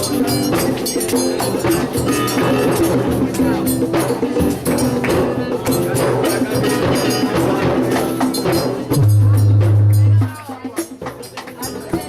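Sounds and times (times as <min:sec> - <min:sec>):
live band music: 0:00.0 - 0:10.8
loud steady low note: 0:09.0 - 0:10.3.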